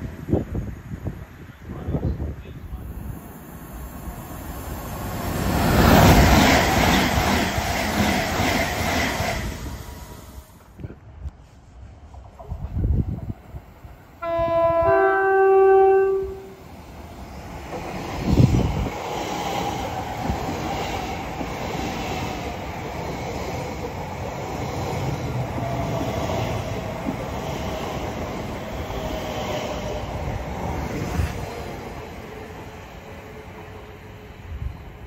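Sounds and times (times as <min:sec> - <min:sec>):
wheels rumbling on rail: 0:00.0 - 0:35.0
two-tone train horn: 0:14.2 - 0:16.6.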